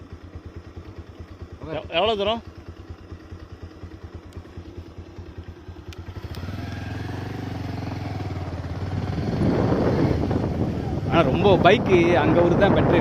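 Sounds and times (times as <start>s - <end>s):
motorcycle engine: 0.0s - 13.0s
sharp clicks: 4.2s - 4.5s, 5.8s - 6.9s.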